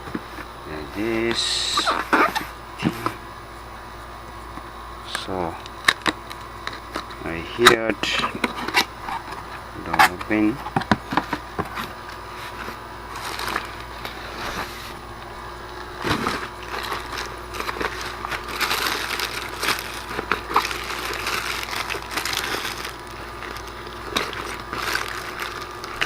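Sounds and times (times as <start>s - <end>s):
cardboard box crunching and rustling: 12.5s - 15.0s, 16.0s - 26.0s.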